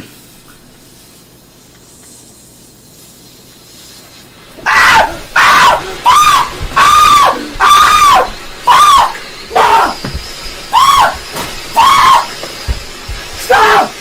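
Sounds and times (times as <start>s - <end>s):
hiss: 0.0s - 14.0s
person screaming: 4.6s - 10.1s, 10.7s - 11.2s, 11.8s - 12.3s, 13.4s - 14.0s.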